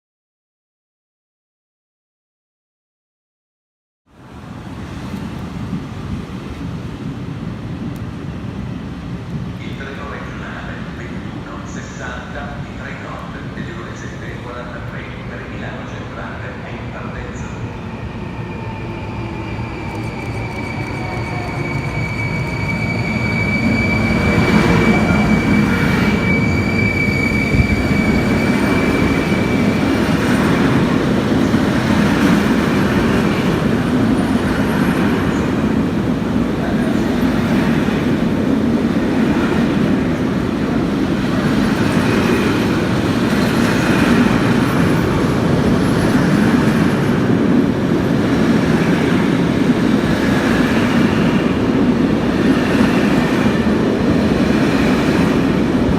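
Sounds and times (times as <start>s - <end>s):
train wheels rumbling on rail: 4.6s - 55.9s
high-pitched squeal: 17.3s - 30.9s.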